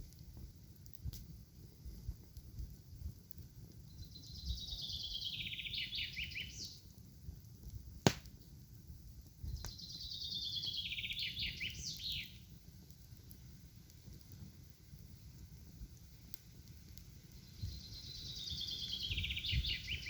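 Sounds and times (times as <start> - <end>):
songbird singing: 3.8 - 6.9, 9.4 - 12.5, 17.3 - 20.0
sharp snap: 8.0 - 8.4.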